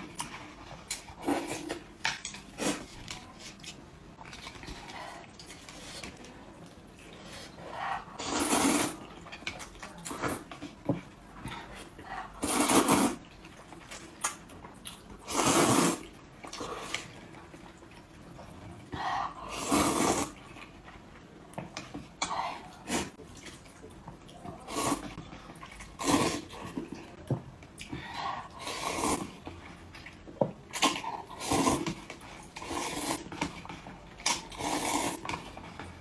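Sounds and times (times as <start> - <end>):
person slurping wet food: 7.2 - 9.2, 12.2 - 13.3, 15.2 - 17.1, 19.4 - 20.5, 24.6 - 27.0, 28.2 - 29.5, 30.7 - 33.5, 34.2 - 35.5.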